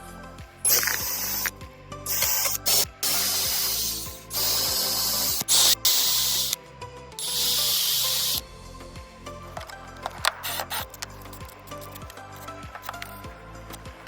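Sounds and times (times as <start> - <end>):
background music: 0.0 - 14.0
hissing spray bursts: 0.6 - 1.5, 2.1 - 6.6, 7.2 - 8.4.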